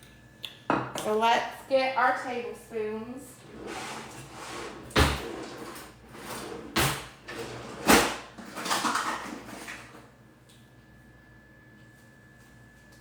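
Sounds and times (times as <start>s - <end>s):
metal utensils clattering: 7.4s - 10.0s.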